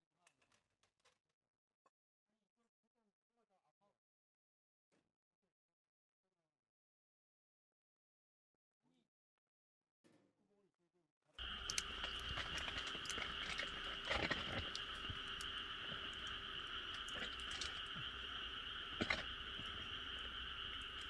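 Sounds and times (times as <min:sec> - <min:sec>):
frogs chorus: 0:11.4 - 0:21.0
wood fire crackling: 0:11.4 - 0:21.0.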